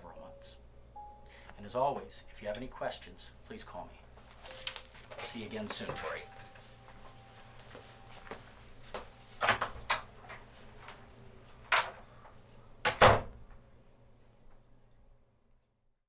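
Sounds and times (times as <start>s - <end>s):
door clicks and knocks: 12.8s - 13.4s.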